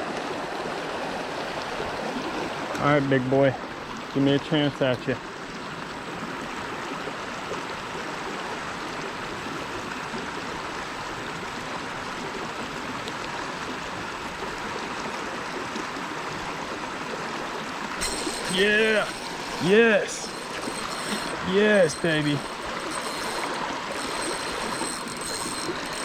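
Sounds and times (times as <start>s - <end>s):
water rushing over rocks: 18.0s - 26.0s.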